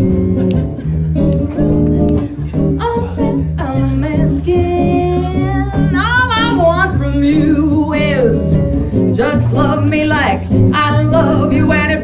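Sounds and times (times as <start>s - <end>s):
band playing instrumental: 0.0s - 3.6s.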